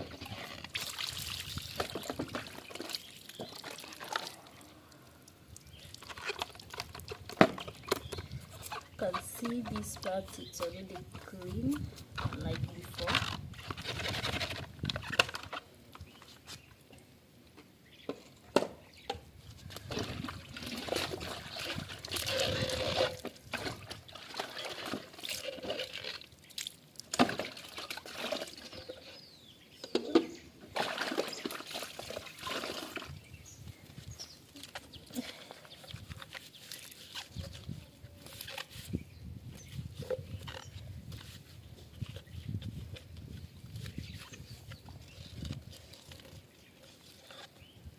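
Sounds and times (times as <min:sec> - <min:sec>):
water sloshing and trickling: 0:00.0 - 0:16.0, 0:19.4 - 0:39.0.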